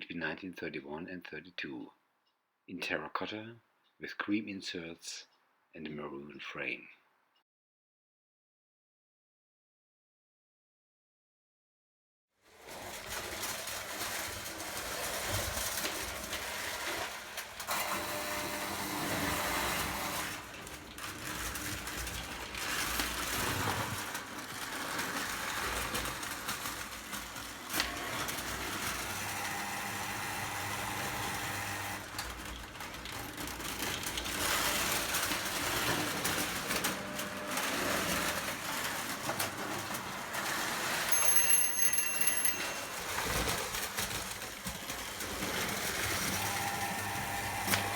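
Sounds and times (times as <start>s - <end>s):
toy train rattling on track: 12.6s - 47.9s
brief high tone: 41.1s - 43.0s.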